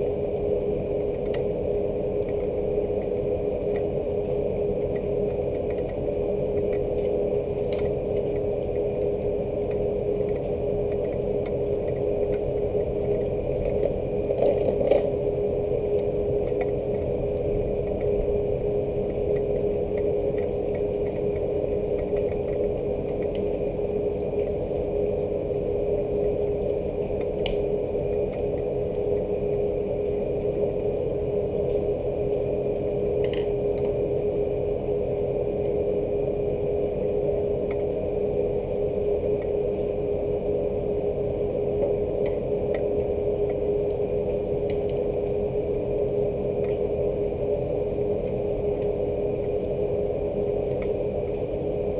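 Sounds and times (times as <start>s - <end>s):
low mechanical hum: 0.0s - 51.9s
faint ticks: 4.8s - 12.5s
rain drops ticking: 4.8s - 15.2s, 18.9s - 29.6s.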